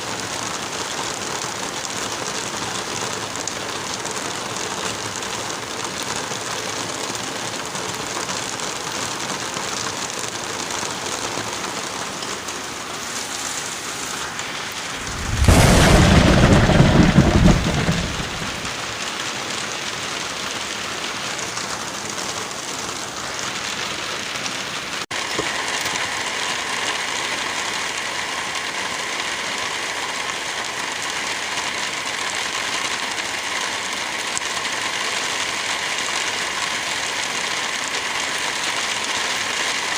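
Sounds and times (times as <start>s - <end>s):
steady rain: 0.0s - 39.9s
thunderclap: 14.6s - 19.1s.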